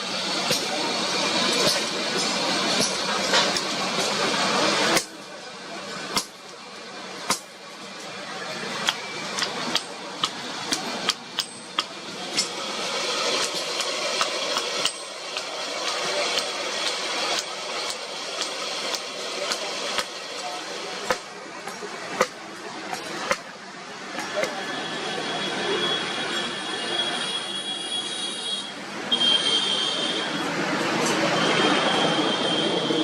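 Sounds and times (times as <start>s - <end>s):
street traffic noise: 0.0s - 33.0s
hammer striking iron on anvil: 1.5s - 4.1s, 6.1s - 6.5s, 7.2s - 7.6s, 8.8s - 23.5s
loud rushing noise: 28.8s - 33.0s.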